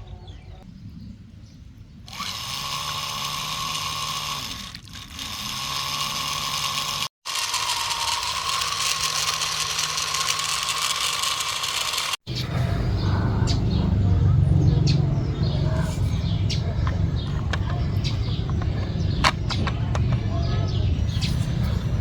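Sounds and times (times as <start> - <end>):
small geared motor whining: 2.1 - 12.2, 15.8 - 20.3.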